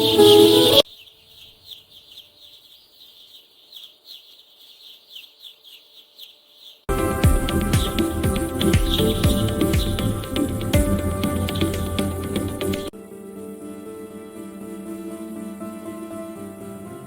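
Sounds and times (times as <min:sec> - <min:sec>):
baby chicks peeping: 0:00.0 - 0:06.9
loud music: 0:06.9 - 0:17.0.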